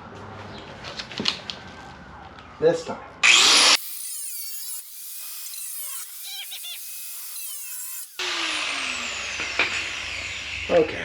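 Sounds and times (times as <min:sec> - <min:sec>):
power tool cutting sheet steel: 0:03.2 - 0:11.0.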